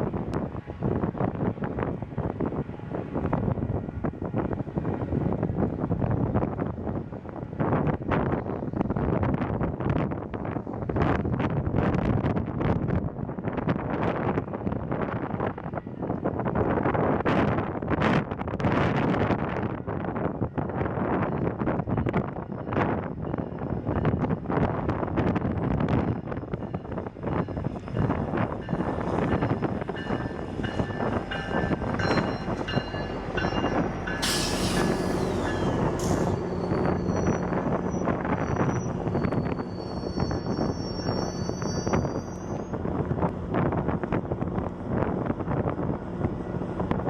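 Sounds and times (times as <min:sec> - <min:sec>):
train rumbling on rails: 0:00.0 - 0:47.0
wind buffeting microphone: 0:00.0 - 0:47.0
wheel squeals: 0:27.8 - 0:42.7
hiss burst: 0:34.2 - 0:36.4.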